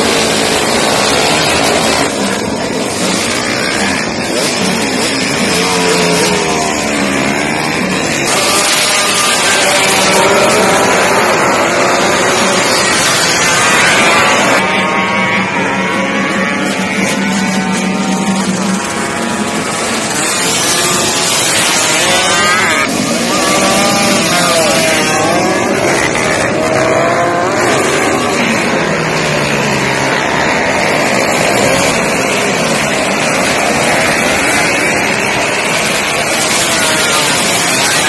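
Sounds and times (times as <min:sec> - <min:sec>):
motorcycle engines revving: 0:00.0 - 0:38.0.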